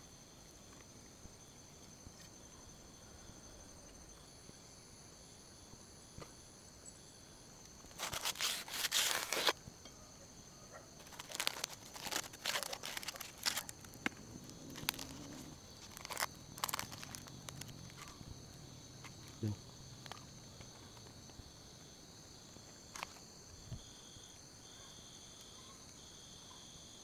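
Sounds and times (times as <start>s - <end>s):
insects chirping: 0.0s - 27.0s
crunching crinkling rustles: 7.6s - 9.6s, 10.9s - 21.4s, 22.6s - 23.4s.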